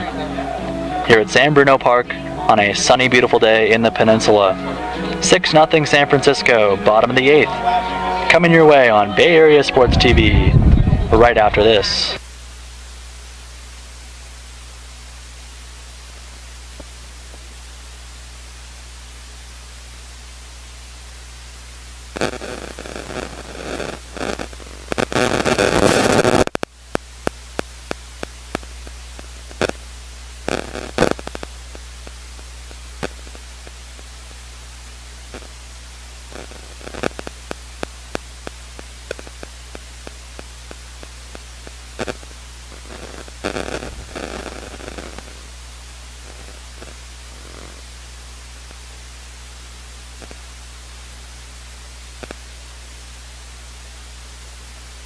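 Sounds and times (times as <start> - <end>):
crackling noise: 0.0 - 55.0
electrical hum and hiss: 0.0 - 55.0
sharp clicks: 24.4 - 29.8.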